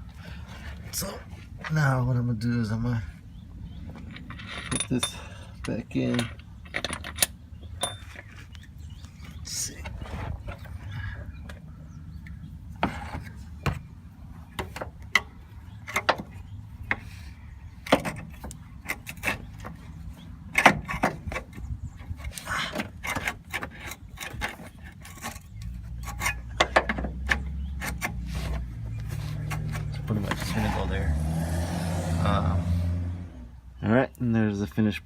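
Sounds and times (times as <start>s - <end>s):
metal clinks and knocks: 3.9s - 8.4s.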